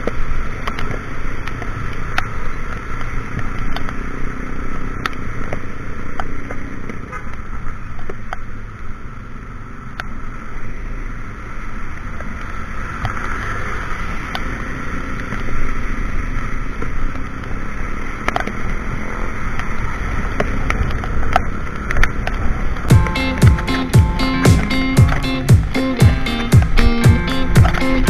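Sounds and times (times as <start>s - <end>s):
wind and road noise: 0.0s - 23.4s
scooter engine running: 22.9s - 28.0s.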